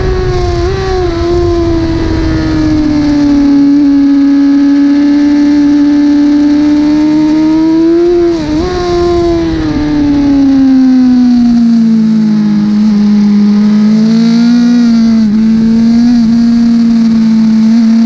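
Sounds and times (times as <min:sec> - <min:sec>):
superbike engine at high revs: 0:00.0 - 0:18.0.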